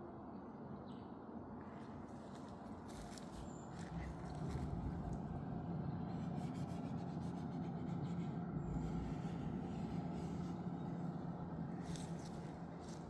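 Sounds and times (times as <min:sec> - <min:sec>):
diesel heater humming: 0:03.9 - 0:13.0.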